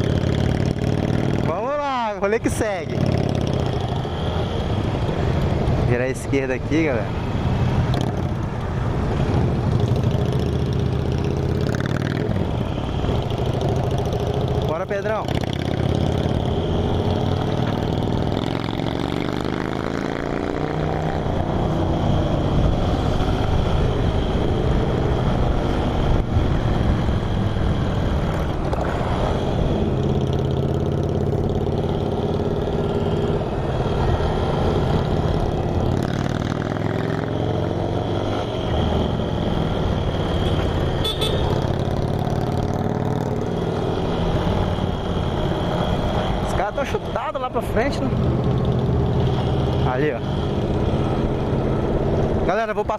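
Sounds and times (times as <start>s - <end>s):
wind and road noise: 0.0s - 52.9s
motorcycle engine running: 23.4s - 52.4s.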